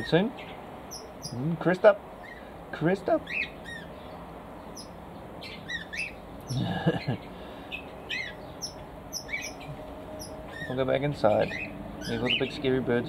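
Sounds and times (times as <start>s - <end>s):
small birds chirping: 0.0s - 13.0s
lower bird call: 3.3s - 12.6s.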